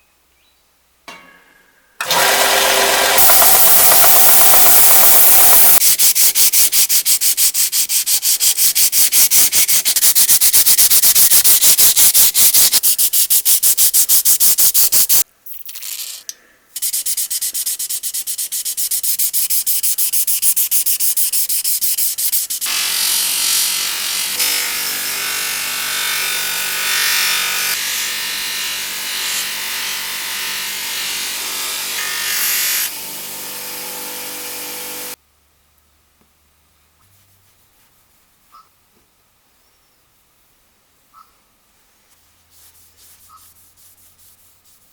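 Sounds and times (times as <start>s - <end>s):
sandpaper rubbing on metal: 3.1s - 15.6s, 16.8s - 22.7s, 42.4s - 44.9s.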